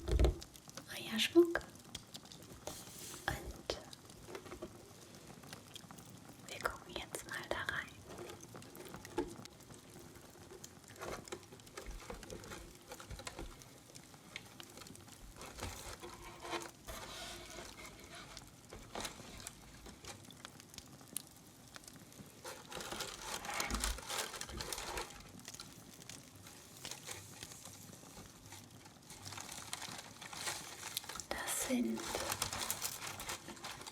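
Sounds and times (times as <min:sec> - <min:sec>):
box rustling and crinkling: 0:02.5 - 0:05.2, 0:08.0 - 0:20.5, 0:22.2 - 0:33.9.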